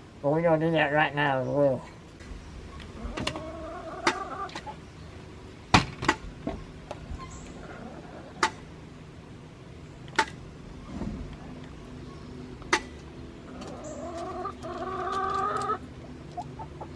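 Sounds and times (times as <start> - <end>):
sharp clicks and knocks: 8.4 - 8.6.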